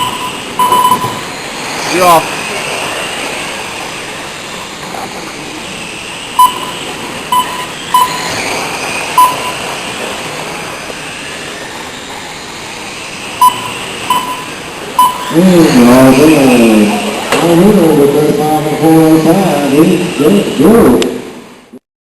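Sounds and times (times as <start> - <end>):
short beeps: 0.0 - 1.3, 6.4 - 8.3, 9.2 - 9.6, 13.4 - 15.4
racing trucks whining: 0.0 - 21.8.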